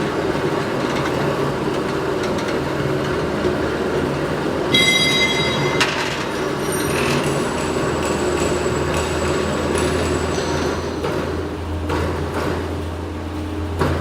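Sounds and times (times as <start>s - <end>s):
factory machinery running: 0.0s - 14.0s
high-pitched metallic squeal: 4.7s - 7.8s.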